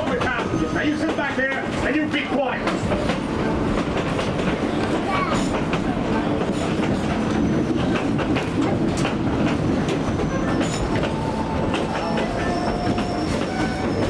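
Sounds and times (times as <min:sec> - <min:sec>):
train cars rumbling: 0:00.0 - 0:14.0
wheels clicking over rail joints: 0:00.0 - 0:14.0
faint wheel squeal: 0:10.0 - 0:14.0.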